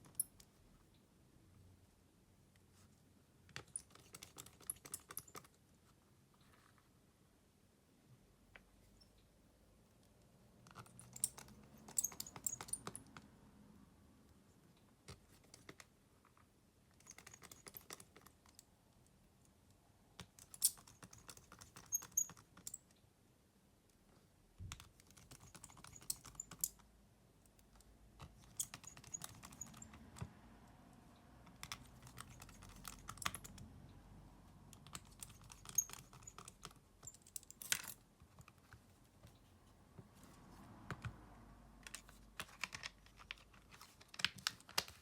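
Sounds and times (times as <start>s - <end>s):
small parts and tools clicking: 3.5s - 5.6s, 10.6s - 13.3s, 15.1s - 18.7s, 20.2s - 23.0s, 24.6s - 26.9s, 27.5s - 30.3s, 31.4s - 33.7s, 34.7s - 38.8s.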